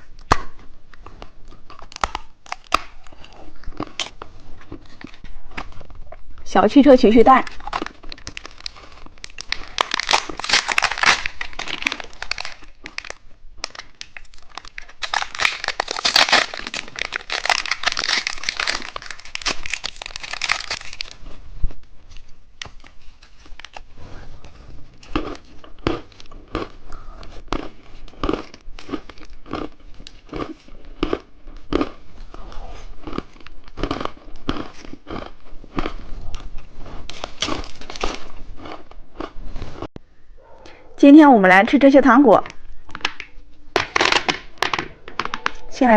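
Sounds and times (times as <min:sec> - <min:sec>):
plastic packaging crumpling: 0:01.7 - 0:06.0, 0:07.4 - 0:21.4, 0:22.1 - 0:26.7, 0:35.7 - 0:38.8.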